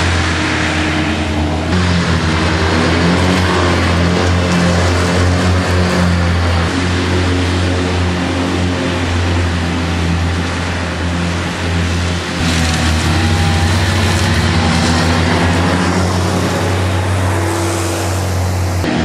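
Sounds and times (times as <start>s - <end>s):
loader engine drone: 0.0s - 19.0s
mower attachment whirring: 11.1s - 19.0s.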